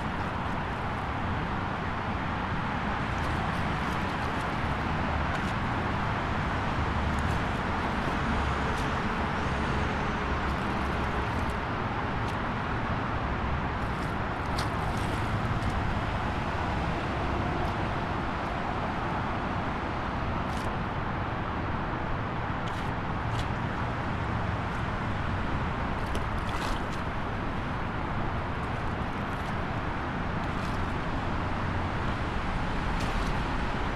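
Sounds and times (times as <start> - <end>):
outdoor rumble and hiss: 0.0 - 33.9.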